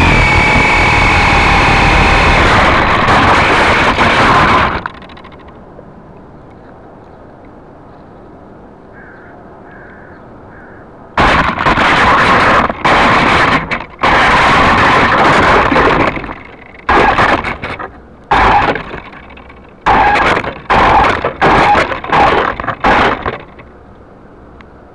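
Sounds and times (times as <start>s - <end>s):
toy helicopter rotors roaring: 0.0s - 5.5s
low hum: 0.0s - 9.6s.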